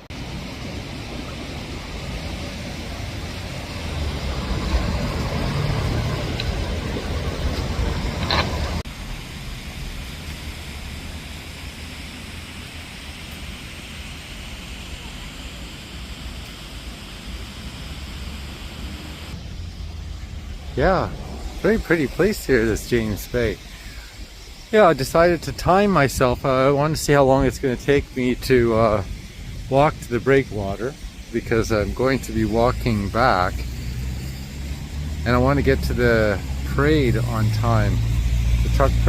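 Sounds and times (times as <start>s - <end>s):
traffic hiss: 0.0s - 39.0s
vehicle passing with low rumble: 0.1s - 11.7s, 18.2s - 23.7s, 27.4s - 39.0s.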